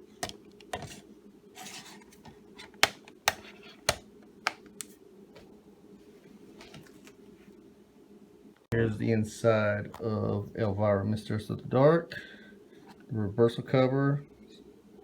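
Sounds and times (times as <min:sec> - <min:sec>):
rustling scrape: 0:00.8 - 0:02.7
plastic cases clicking: 0:02.6 - 0:04.9.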